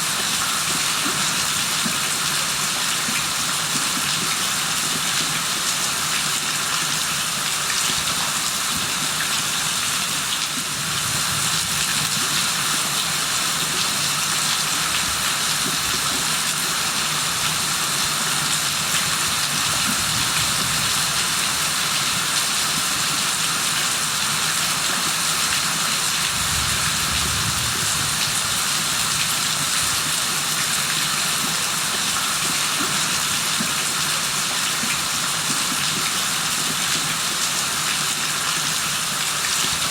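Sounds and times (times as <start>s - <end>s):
heavy rain falling: 26.0s - 30.5s.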